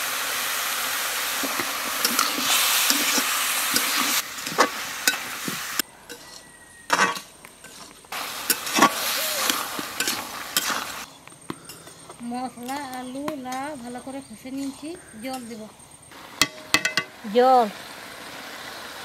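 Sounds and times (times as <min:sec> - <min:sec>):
vegetables sizzling in hot oil: 0:00.0 - 0:11.1, 0:12.8 - 0:19.0
spatula scraping and knocking pan: 0:01.4 - 0:10.9.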